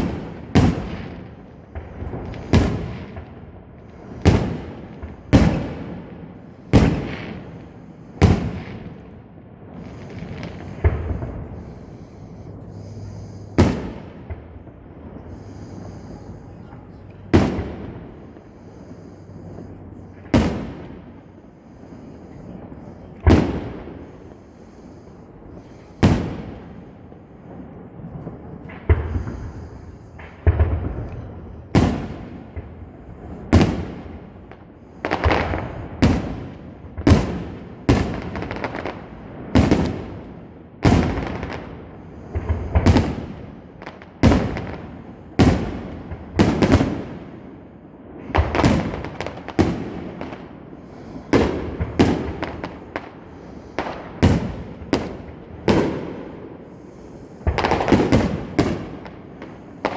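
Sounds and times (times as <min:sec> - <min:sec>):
fireworks bangs: 0:00.0 - 0:59.9.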